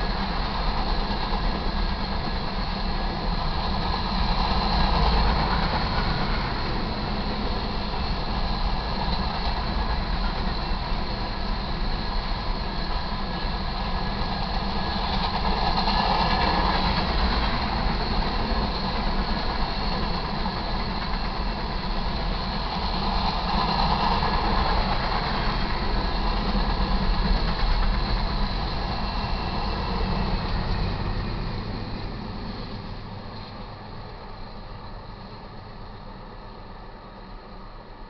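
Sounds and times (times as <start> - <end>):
freight train rolling past: 0.0 - 38.0
steel wheels clattering on rail: 0.0 - 38.0.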